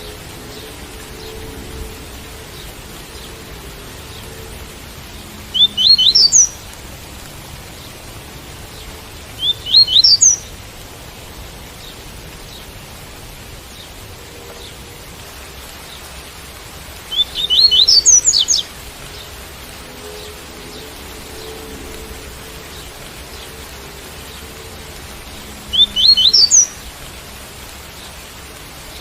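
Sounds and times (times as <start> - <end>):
rain hiss: 0.0 - 29.0
bird whistled song: 5.5 - 6.6, 9.4 - 10.4, 17.1 - 18.7, 25.7 - 26.8.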